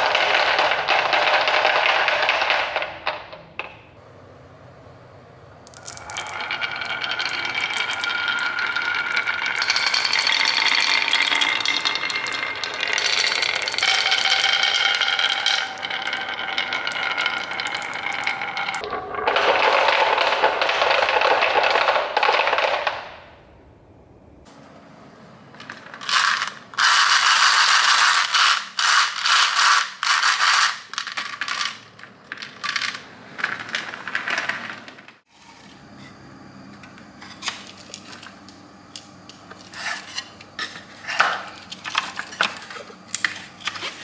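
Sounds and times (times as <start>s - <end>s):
toy parts clattering and rattling: 5.7s - 23.1s, 25.6s - 35.1s, 39.6s - 44.0s.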